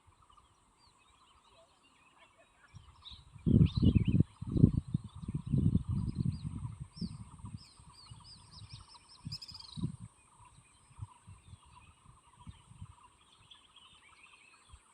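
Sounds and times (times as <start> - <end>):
wild birds calling and chirping: 0.0 - 14.9
wind buffeting microphone: 2.7 - 14.0.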